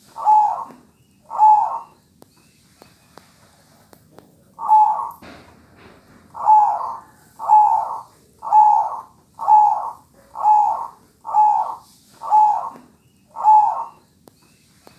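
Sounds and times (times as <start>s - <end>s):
dove cooing: 0.0s - 2.0s, 4.6s - 5.3s, 6.3s - 14.1s.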